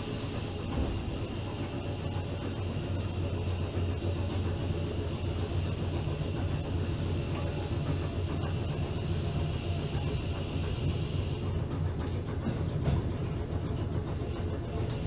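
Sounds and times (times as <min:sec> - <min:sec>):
electric train low hum: 0:00.0 - 0:15.0
wheels rumbling on rail: 0:00.0 - 0:15.0.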